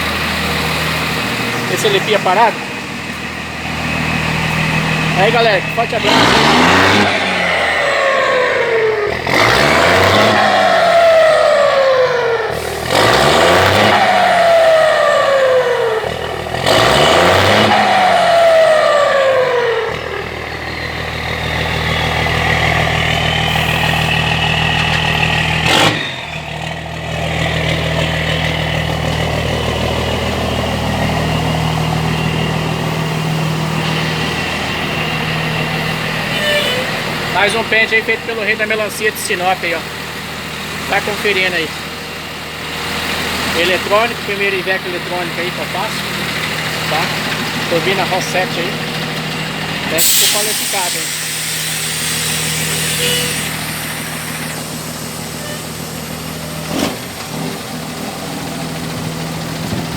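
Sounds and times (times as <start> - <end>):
diesel truck engine revving: 0.0 - 59.9
turbo whistling: 31.5 - 39.0, 49.8 - 56.7.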